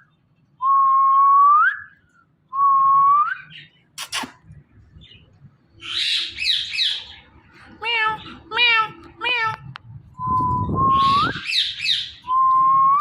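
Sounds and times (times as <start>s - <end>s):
rough noisy bird calls: 3.4s - 7.6s, 10.8s - 12.4s
parrot whistling upward sweep: 10.2s - 13.0s.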